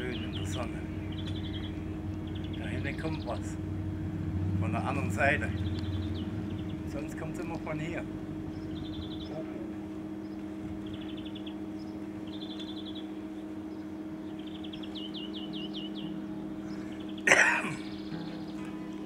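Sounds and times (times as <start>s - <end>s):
songbird trilling: 0.0s - 4.0s, 4.7s - 19.0s
steady low hum: 0.0s - 19.0s.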